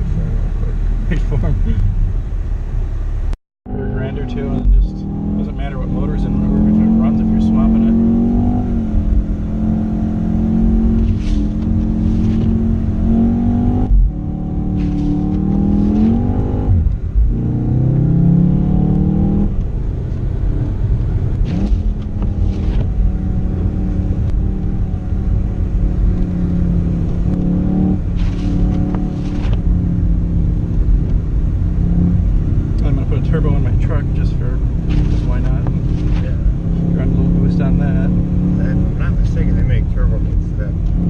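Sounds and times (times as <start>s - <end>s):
car engine accelerating: 0.0s - 41.0s
short swishing noises: 11.0s - 12.6s, 14.8s - 16.3s.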